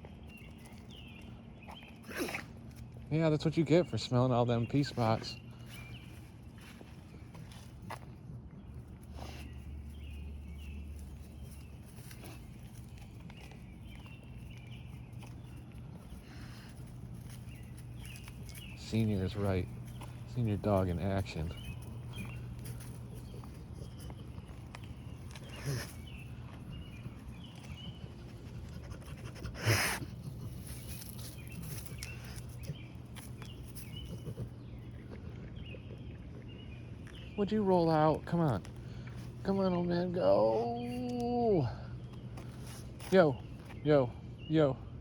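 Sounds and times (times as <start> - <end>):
birds chirping: 0.0 - 45.0
steady low rumble: 2.6 - 29.3
dog breathing and sniffing: 8.8 - 36.6.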